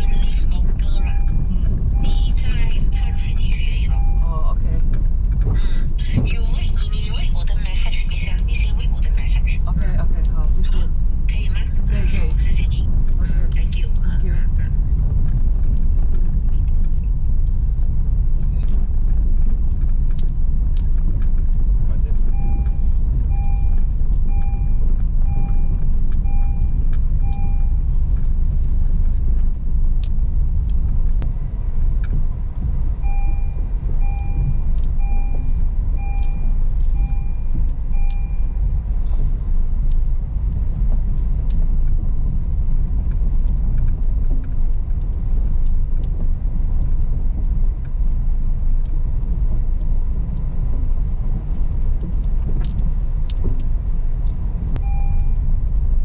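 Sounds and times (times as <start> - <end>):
dashboard warning chime beeping: 0.0 - 4.6, 22.2 - 28.0, 33.0 - 38.9, 54.8 - 55.5
car rumbling over rocky road: 0.0 - 56.0.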